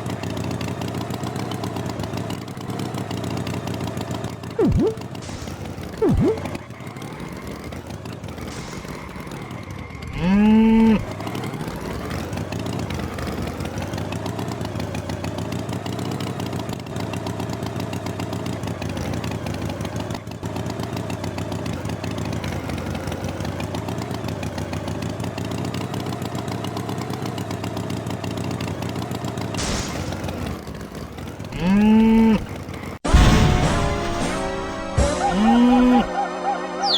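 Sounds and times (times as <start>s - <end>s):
engine running: 0.0s - 36.9s
cow mooing: 31.5s - 32.4s, 35.0s - 36.9s.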